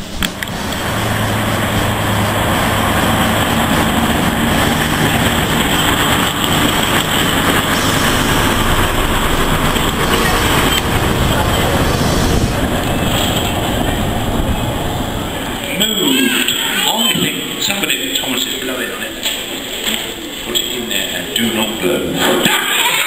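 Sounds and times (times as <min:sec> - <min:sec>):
low engine hum: 0:00.0 - 0:15.7
train wheels rumbling on rail: 0:00.0 - 0:17.6.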